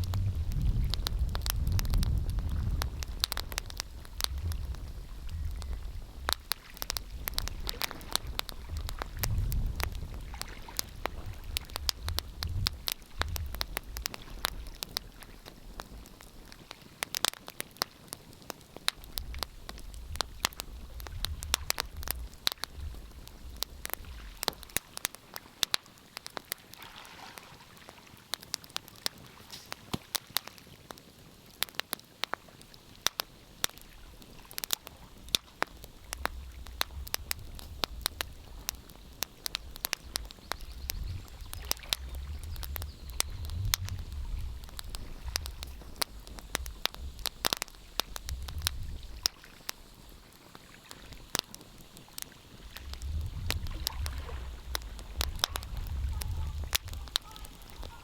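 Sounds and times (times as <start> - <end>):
low rumble: 0.0 - 3.2
wood fire crackling: 0.0 - 26.8, 27.4 - 58.0.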